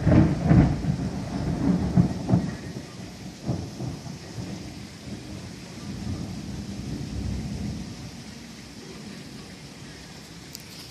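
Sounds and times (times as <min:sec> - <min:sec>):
thunder rumbling and cracking: 0:00.0 - 0:09.5
steady rain: 0:00.0 - 0:10.9.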